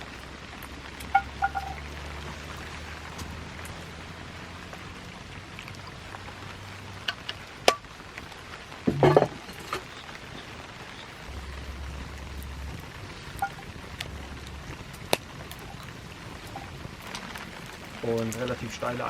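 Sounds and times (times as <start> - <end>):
steady rain hiss: 0.0 - 19.0
sharp knocks: 8.9 - 9.4.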